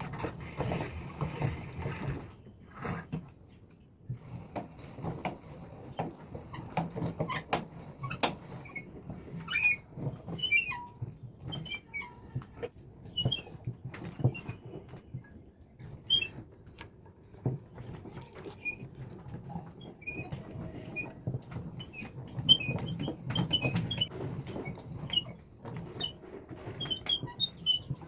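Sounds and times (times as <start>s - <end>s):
grinder jar clicks and scrapes: 0.0s - 15.2s.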